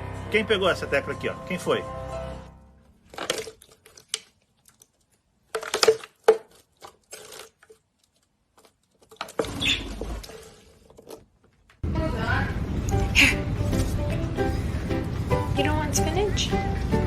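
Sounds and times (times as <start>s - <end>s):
rustling and handling noise: 2.9s - 11.8s.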